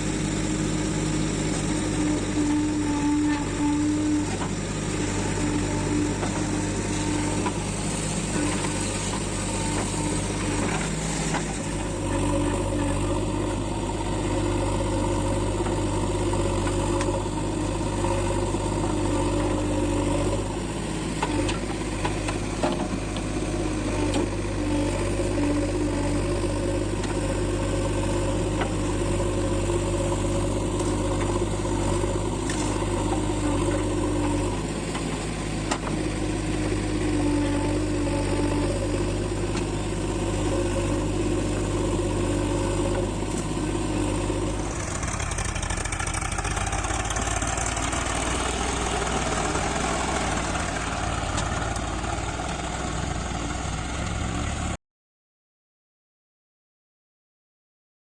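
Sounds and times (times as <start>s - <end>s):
diesel engines running: 0.0s - 54.8s.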